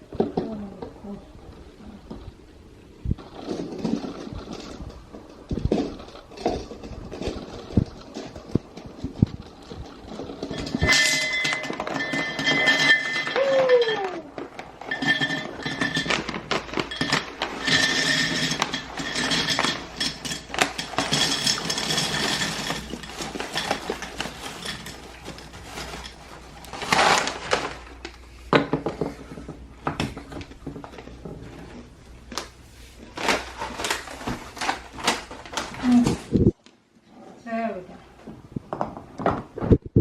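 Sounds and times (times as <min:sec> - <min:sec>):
items clinking when set down: 0:03.2 - 0:32.5
packaging rustling and crinkling: 0:13.3 - 0:28.4, 0:29.0 - 0:36.7.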